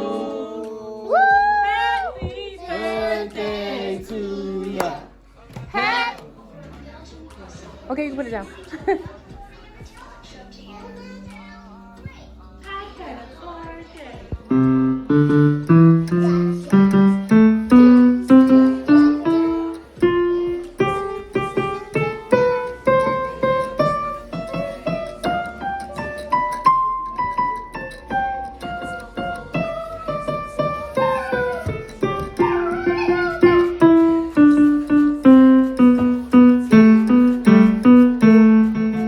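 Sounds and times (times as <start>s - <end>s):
piano music: 14.4s - 39.0s.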